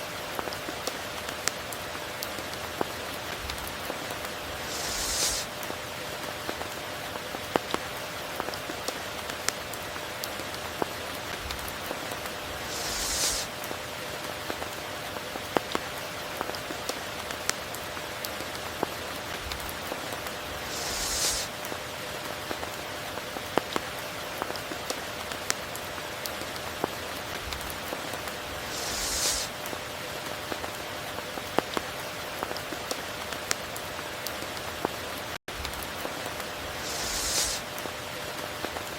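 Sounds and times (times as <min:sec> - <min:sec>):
steady rain: 0:00.0 - 0:38.9
brief hissing swell: 0:04.6 - 0:05.5, 0:12.6 - 0:13.5, 0:20.7 - 0:21.5, 0:28.7 - 0:29.5, 0:36.8 - 0:37.7.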